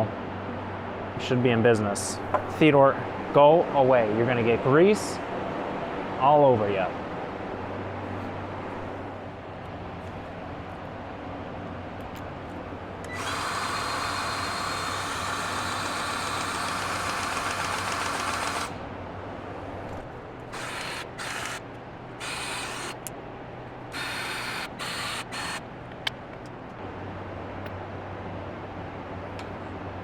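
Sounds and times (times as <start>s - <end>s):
grease gun motor running: 13.1s - 18.8s, 20.5s - 23.1s, 23.9s - 26.5s.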